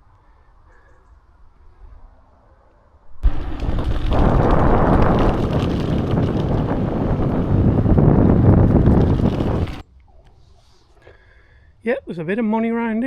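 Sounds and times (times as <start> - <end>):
wind buffeting microphone: 3.2 - 9.8.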